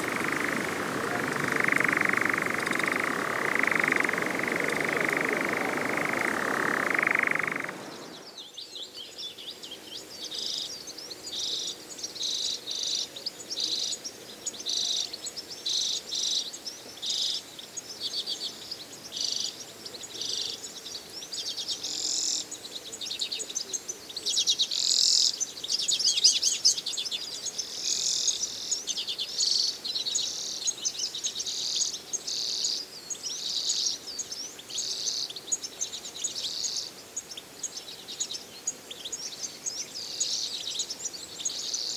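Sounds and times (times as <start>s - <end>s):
birds chattering calls: 0.0s - 8.5s.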